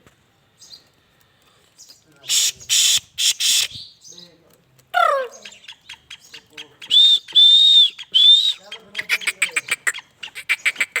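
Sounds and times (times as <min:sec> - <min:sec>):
bird whistled calls: 0:02.2 - 0:03.9, 0:05.3 - 0:09.4.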